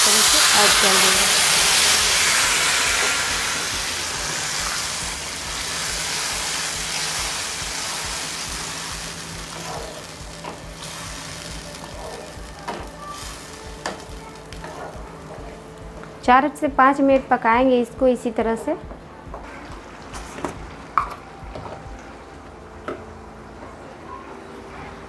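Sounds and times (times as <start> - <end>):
tomato pulp sizzling in hot oil: 0.0 - 16.0.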